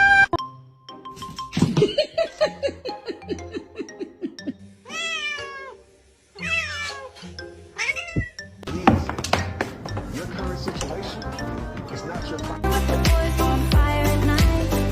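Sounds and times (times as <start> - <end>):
cat meowing: 0.0 - 0.3, 4.9 - 5.8, 6.4 - 8.4.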